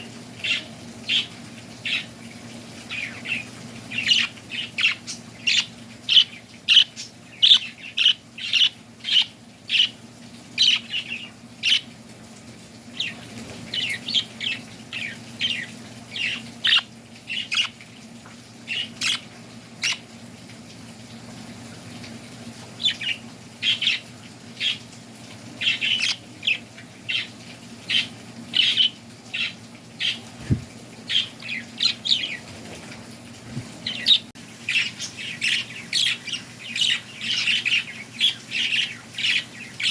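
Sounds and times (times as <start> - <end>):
small birds chirping: 0.0 - 12.0, 12.8 - 20.2, 22.8 - 32.6, 33.5 - 39.9.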